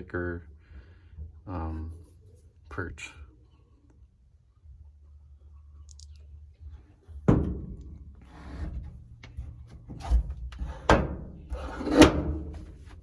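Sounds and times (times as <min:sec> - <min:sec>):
sharp knocks and thumps: 0:07.2 - 0:12.8.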